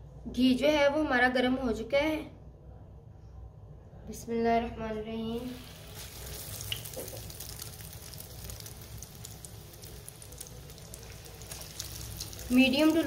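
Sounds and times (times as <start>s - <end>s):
snack sizzling in hot fat: 5.4s - 13.0s.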